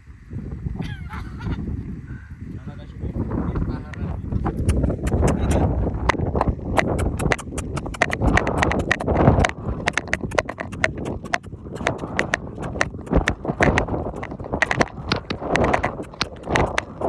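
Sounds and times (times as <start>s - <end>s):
horse hooves clip-clopping: 3.9s - 17.0s.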